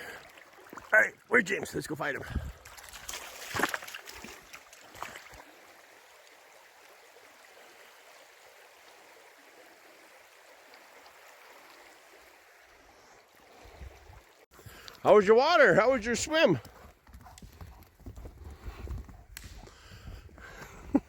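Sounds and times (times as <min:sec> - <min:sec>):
stream flowing: 0:00.0 - 0:16.6.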